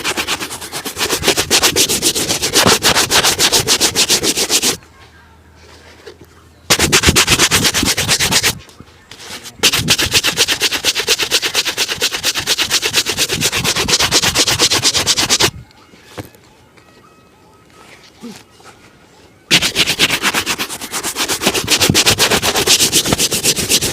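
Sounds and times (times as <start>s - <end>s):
brush rubbing a shoe: 0.0s - 4.8s, 6.7s - 8.6s, 9.3s - 15.5s, 19.5s - 23.9s.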